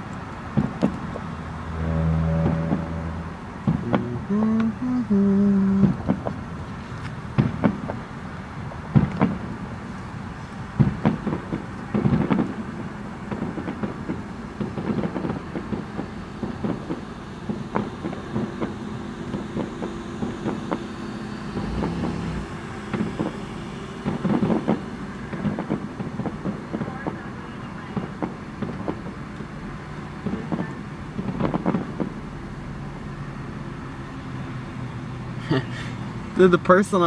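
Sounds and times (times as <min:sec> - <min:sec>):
steady low rumble: 0:00.0 - 0:33.4
distant fireworks booms and pops: 0:00.5 - 0:01.2, 0:07.3 - 0:08.0, 0:08.9 - 0:09.5, 0:10.8 - 0:20.9, 0:24.0 - 0:29.4, 0:30.0 - 0:32.3.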